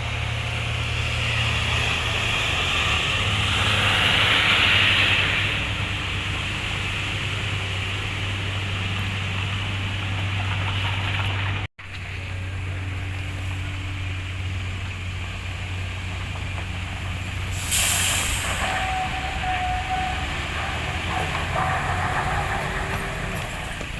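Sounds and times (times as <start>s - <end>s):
truck diesel engine drone: 0.0s - 23.9s
loud rushing hiss: 3.2s - 6.0s, 17.4s - 19.7s.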